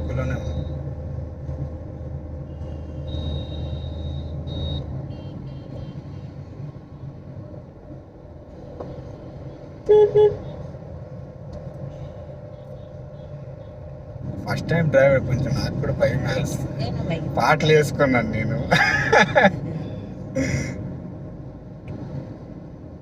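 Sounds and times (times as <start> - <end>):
car and road rumble: 0.0 - 23.0
car horn beeps: 2.5 - 6.3, 9.8 - 10.5.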